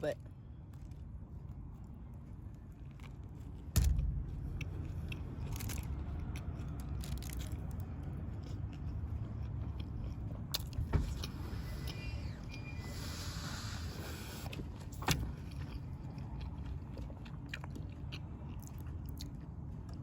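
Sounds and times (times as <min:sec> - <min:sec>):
low rumble: 0:00.4 - 0:14.6
person chewing food: 0:00.5 - 0:20.0
sharp knocks: 0:03.8 - 0:05.0.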